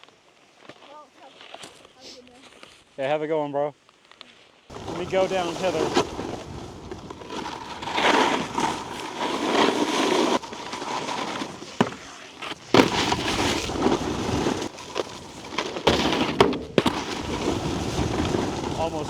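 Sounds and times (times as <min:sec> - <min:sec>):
snowboard scraping on icy snow: 0:00.0 - 0:02.8, 0:04.3 - 0:19.0
snowboard landing knocks: 0:04.7 - 0:19.0.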